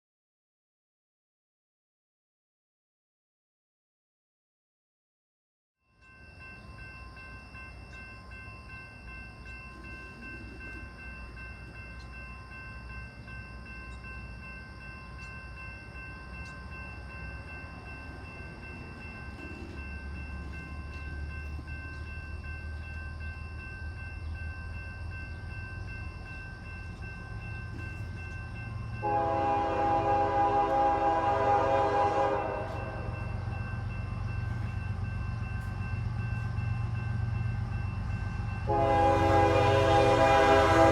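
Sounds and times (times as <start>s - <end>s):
train rumbling: 6.0s - 40.9s
train horn blast: 29.0s - 33.3s, 38.6s - 40.9s.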